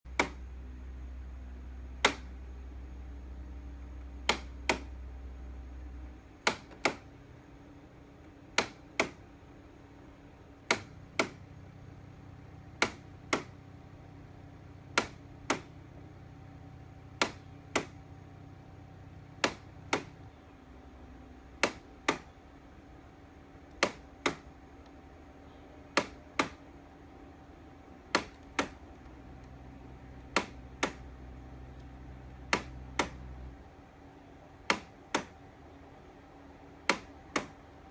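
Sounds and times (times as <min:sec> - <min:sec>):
air conditioner double clicks: 0:00.1 - 0:00.5, 0:02.0 - 0:02.5, 0:04.0 - 0:05.0, 0:06.4 - 0:07.2, 0:08.2 - 0:09.4, 0:10.6 - 0:11.6, 0:12.7 - 0:13.7, 0:14.9 - 0:15.9, 0:17.1 - 0:18.1, 0:19.3 - 0:20.5, 0:21.1 - 0:22.4, 0:23.6 - 0:26.8, 0:28.0 - 0:33.6, 0:34.6 - 0:35.5, 0:36.8 - 0:37.9
air conditioner hum: 0:00.1 - 0:37.9.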